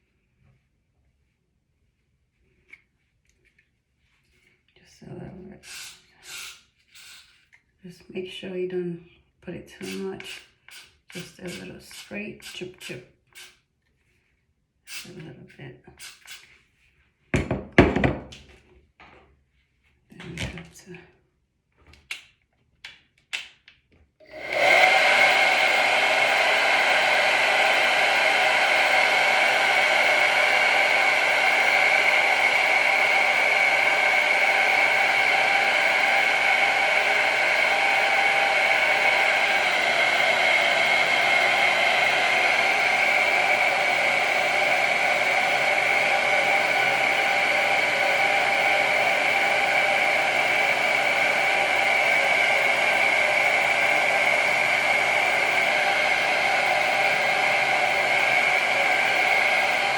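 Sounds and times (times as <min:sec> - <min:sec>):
hair dryer blowing: 0:05.6 - 0:07.4, 0:09.7 - 0:13.5, 0:14.9 - 0:15.2, 0:24.2 - 0:59.9.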